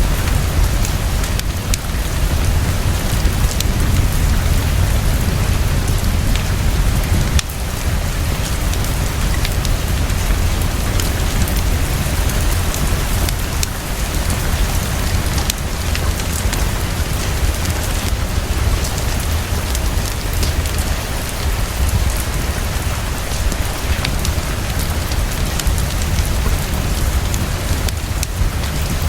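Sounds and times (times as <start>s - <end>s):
deep low rumble: 0.0s - 20.0s
heavy rainfall: 0.0s - 29.0s.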